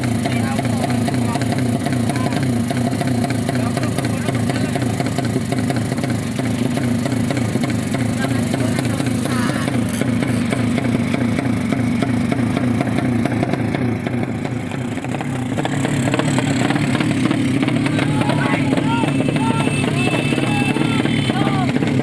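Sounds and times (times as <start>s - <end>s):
motorcycle engine running: 0.0s - 22.0s
faint voices: 8.0s - 10.6s, 16.7s - 22.0s.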